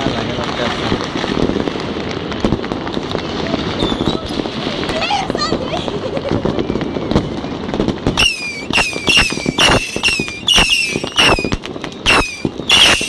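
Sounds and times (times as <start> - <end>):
fireworks bangs: 0.0 - 13.0
fireworks crackling: 0.0 - 13.0
falling firework whistle: 3.7 - 4.4, 6.4 - 13.0.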